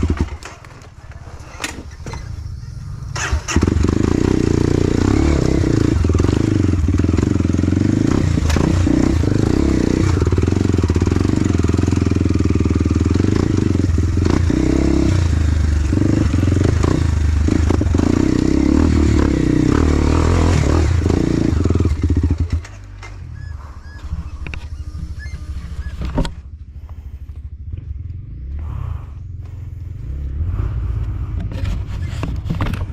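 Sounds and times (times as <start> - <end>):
dirt bike engine running: 0.0 - 32.9
quiet clatter: 31.0 - 32.9.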